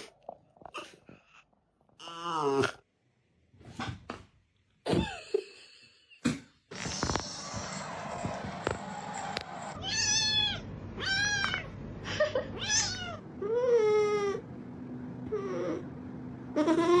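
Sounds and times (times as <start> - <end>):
cat meowing: 9.8 - 11.7, 12.6 - 13.2.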